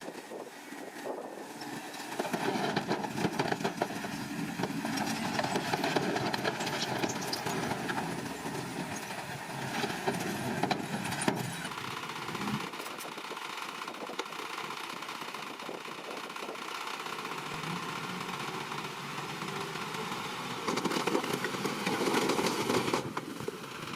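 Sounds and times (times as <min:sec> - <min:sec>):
bulldozer diesel engine running: 0:00.1 - 0:23.9
rattling clicks and clanks: 0:02.0 - 0:09.1, 0:18.2 - 0:23.3.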